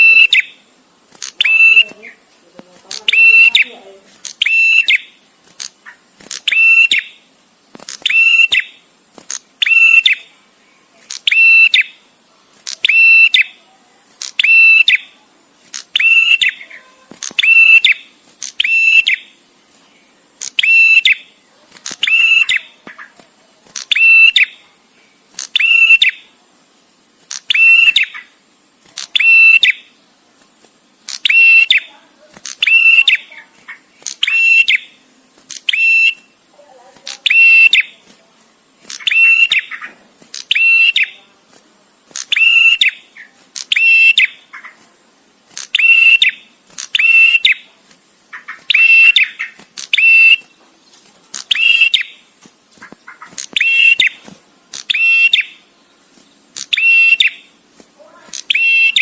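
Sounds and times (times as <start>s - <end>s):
bird rattling call: 52.8s - 54.2s.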